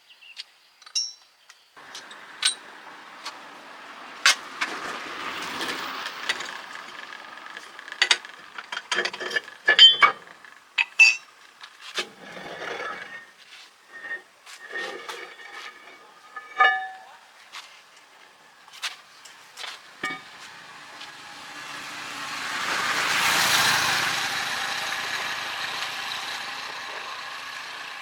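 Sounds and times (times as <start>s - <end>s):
metallic clicks and clanks: 1.8s - 3.4s, 4.2s - 13.3s, 13.9s - 17.2s, 19.2s - 20.4s.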